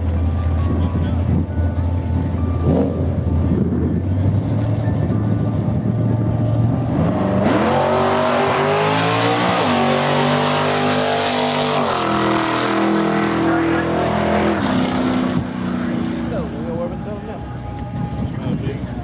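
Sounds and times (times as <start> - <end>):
car engine revving and accelerating: 2.6 - 17.0.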